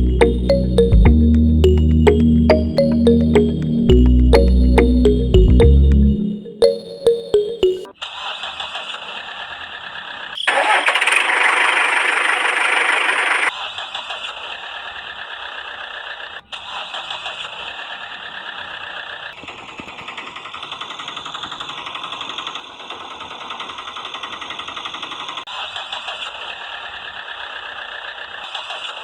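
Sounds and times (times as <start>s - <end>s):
small motor whirring: 10.5s - 13.5s.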